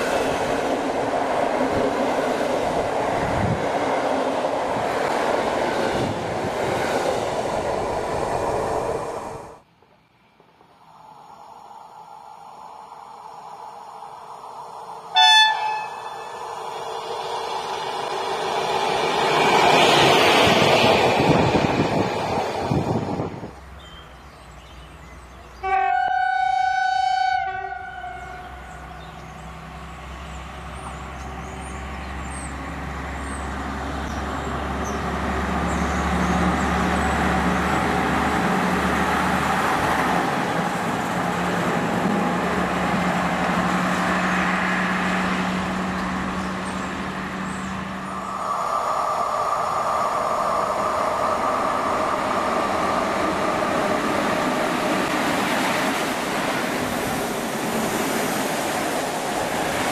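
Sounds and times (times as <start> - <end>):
electric locomotive whine: 0.0 - 24.2, 25.2 - 59.9
train running: 0.0 - 59.9
rail vehicle horn blast: 15.1 - 16.3, 25.6 - 28.6.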